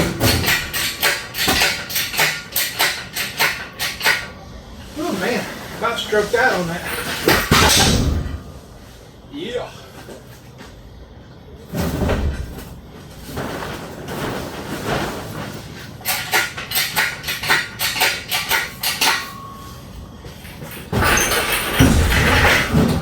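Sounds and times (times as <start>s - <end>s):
metal clanks and knocks: 0.0s - 4.4s, 6.6s - 9.0s, 14.9s - 23.0s.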